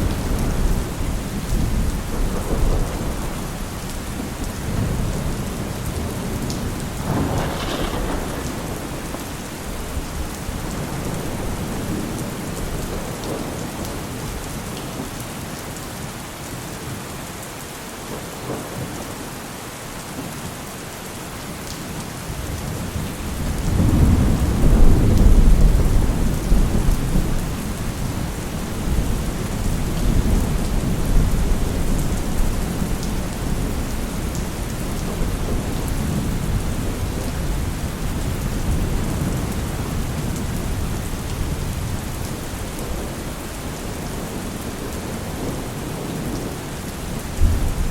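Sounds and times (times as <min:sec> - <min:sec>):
deep rumble of thunder: 0:00.0 - 0:14.4, 0:22.4 - 0:47.9
heavy rain falling: 0:00.0 - 0:47.9
crack of thunder: 0:06.0 - 0:13.4, 0:47.4 - 0:47.9.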